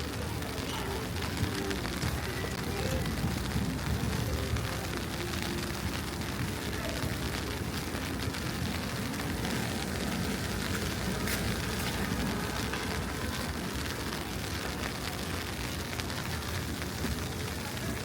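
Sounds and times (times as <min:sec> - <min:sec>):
traffic hum: 0:00.0 - 0:18.0.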